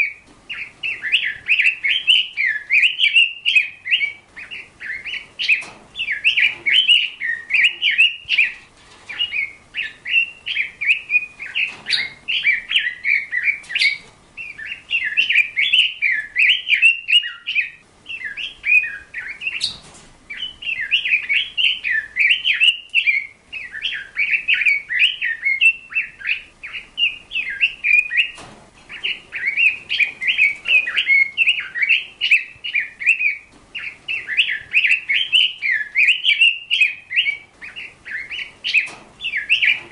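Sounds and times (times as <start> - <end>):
bird chirping and twittering: 0.0 - 39.9.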